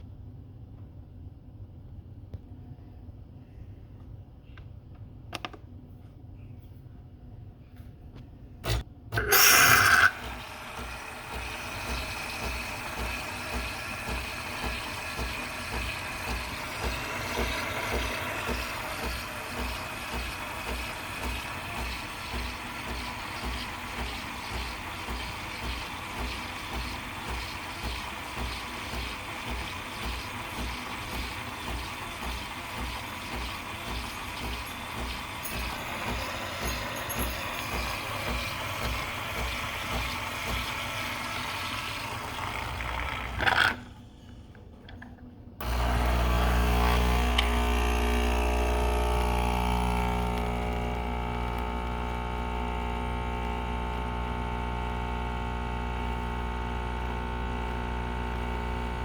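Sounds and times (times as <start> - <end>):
pump humming: 8.7 - 43.8, 45.6 - 59.0
steam and milk hissing: 9.2 - 43.7, 45.6 - 58.1.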